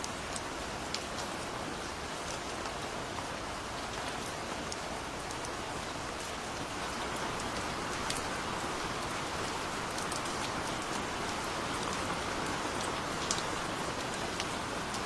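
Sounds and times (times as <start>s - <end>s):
steady rain hiss: 0.0s - 15.0s
raindrops pattering: 3.5s - 15.0s.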